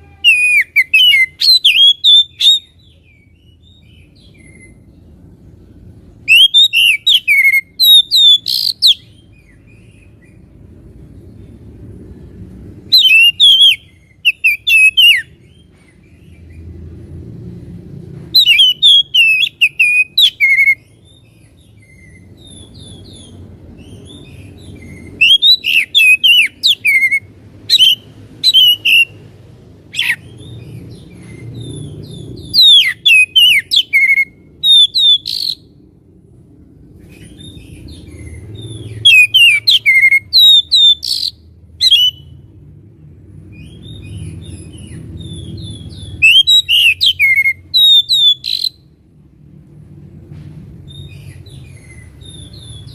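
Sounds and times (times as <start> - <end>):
bird singing whistled phrases: 0.0 - 4.8, 6.2 - 9.2, 12.9 - 15.3, 18.4 - 20.8, 25.0 - 29.2, 30.0 - 30.3, 32.4 - 35.7, 39.0 - 42.3, 45.2 - 48.8.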